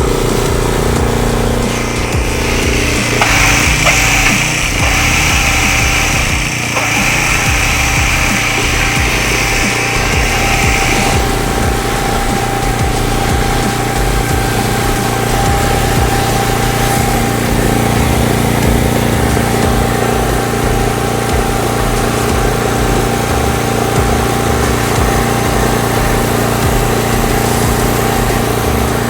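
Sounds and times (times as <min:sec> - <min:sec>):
mower engine running: 0:00.0 - 0:29.0
steady whine: 0:00.0 - 0:29.0.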